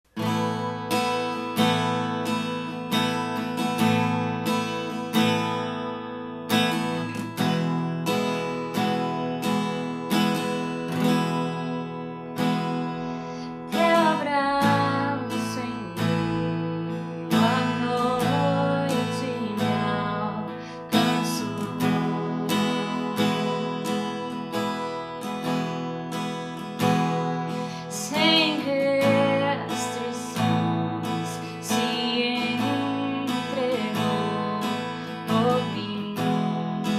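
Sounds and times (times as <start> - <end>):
acoustic guitar strumming: 0.1 - 36.9.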